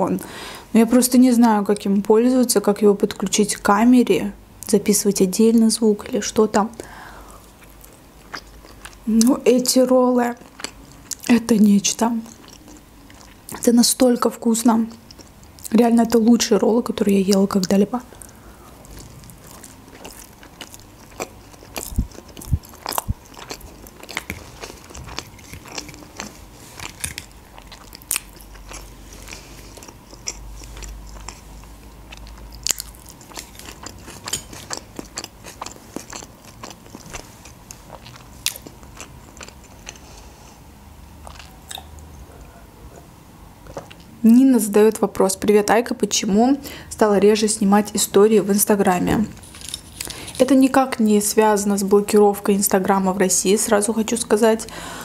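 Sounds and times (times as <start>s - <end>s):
person chewing: 7.3s - 9.3s, 10.4s - 11.3s, 12.2s - 13.6s, 14.9s - 15.7s, 17.3s - 40.6s, 41.2s - 44.2s, 49.3s - 50.5s.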